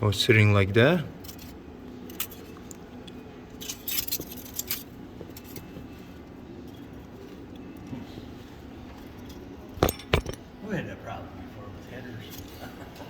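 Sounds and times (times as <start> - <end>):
steady low hum: 1.1 - 10.8
metal parts clinking and rattling: 3.6 - 5.6, 9.8 - 10.5.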